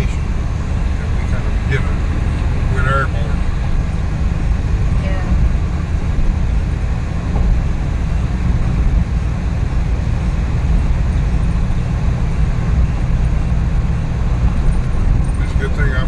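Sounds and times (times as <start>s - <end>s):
van engine and road noise: 0.0s - 16.0s.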